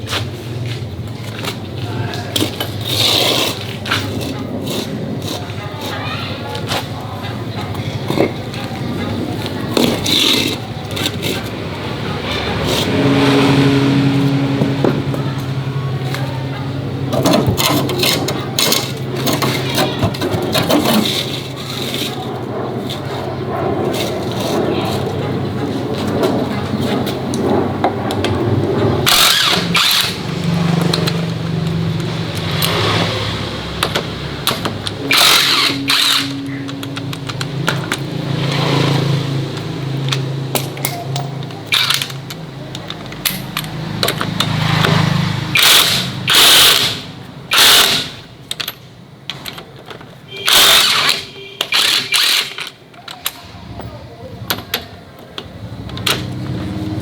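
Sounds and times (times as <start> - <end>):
power tool bursts: 29.0 - 30.3, 34.4 - 37.4, 45.5 - 48.3, 50.3 - 52.7
motor humming: 29.0 - 39.2.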